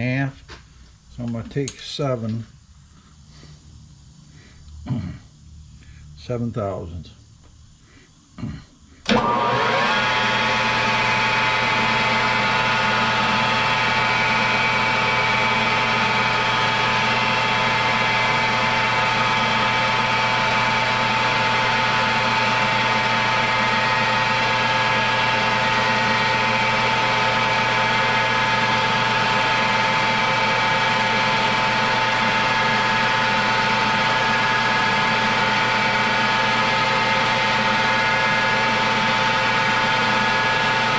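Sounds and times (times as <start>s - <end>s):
electric motor spinning up and whining: 9.0s - 40.9s.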